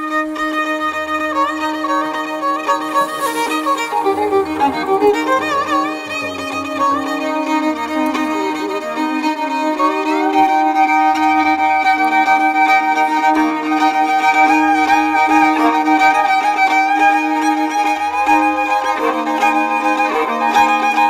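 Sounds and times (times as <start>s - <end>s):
violin melody: 0.0s - 21.0s
steady musical accompaniment: 2.4s - 10.9s.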